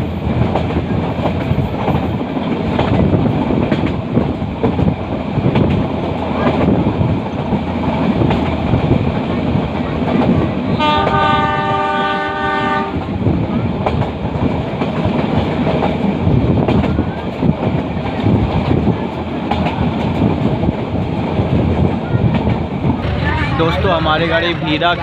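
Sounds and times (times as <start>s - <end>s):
train coaches rumbling and rattling: 0.0s - 25.0s
locomotive horn: 10.8s - 13.0s.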